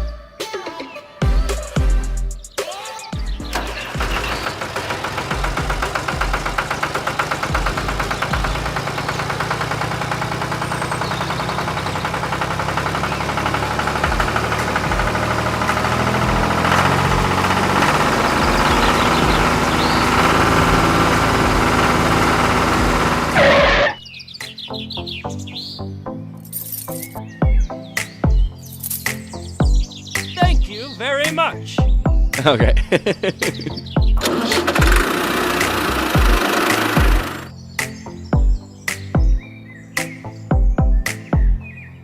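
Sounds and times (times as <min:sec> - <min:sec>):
pulsing engine-like hum: 0:03.5 - 0:24.0, 0:33.9 - 0:37.5.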